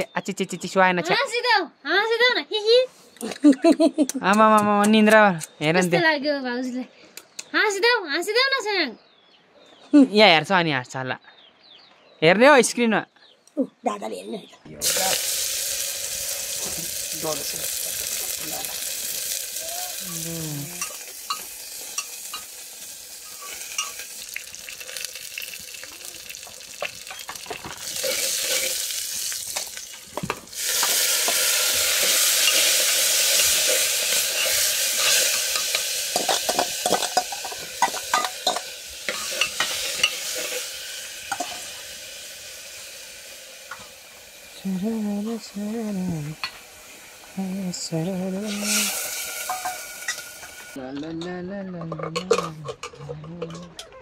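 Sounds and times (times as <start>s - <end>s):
vegetables sizzling in a pot: 14.8s - 50.8s
metal spoon scraping a pot: 23.2s - 24.1s, 27.1s - 28.9s, 30.6s - 40.6s, 48.6s - 50.5s, 51.8s - 54.0s.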